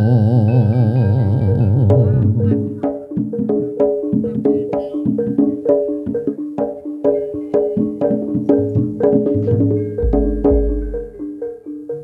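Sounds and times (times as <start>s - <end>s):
tuned mallet percussion: 0.0s - 12.0s.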